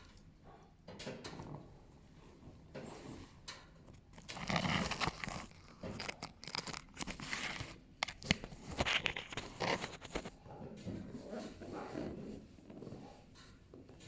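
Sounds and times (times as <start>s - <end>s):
fingers scratching fur: 8.6s - 10.4s.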